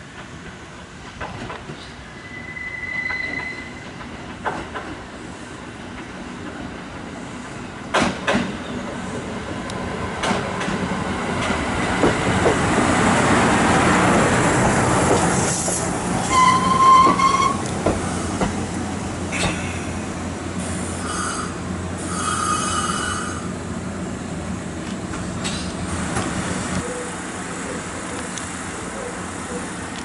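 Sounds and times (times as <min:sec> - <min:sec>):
train running noise: 0:00.0 - 0:30.0
train wheels clacking over rail joint: 0:03.9 - 0:05.0, 0:07.9 - 0:08.8, 0:10.2 - 0:10.8, 0:15.1 - 0:18.6, 0:19.3 - 0:19.8.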